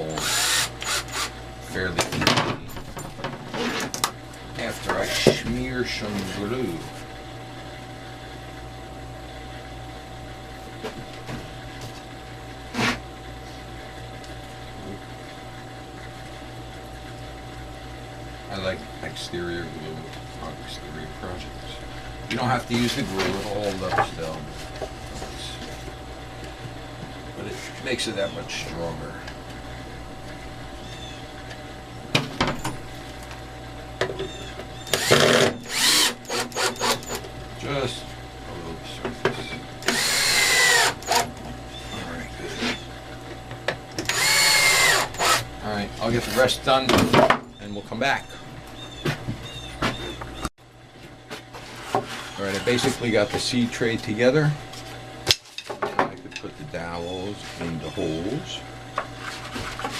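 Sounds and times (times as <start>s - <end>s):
low workshop hum: 0.0s - 59.9s
cordless drill driving screws: 0.1s - 1.3s, 34.8s - 37.2s, 39.8s - 41.3s, 44.1s - 45.5s.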